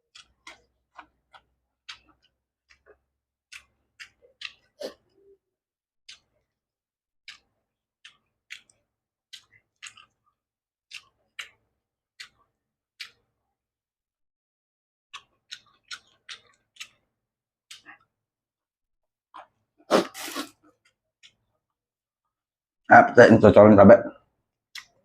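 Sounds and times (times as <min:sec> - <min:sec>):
close-miked chewing: 0:00.0 - 0:05.4, 0:06.1 - 0:06.6, 0:07.2 - 0:13.4, 0:15.1 - 0:18.2, 0:19.1 - 0:21.8, 0:24.7 - 0:25.0.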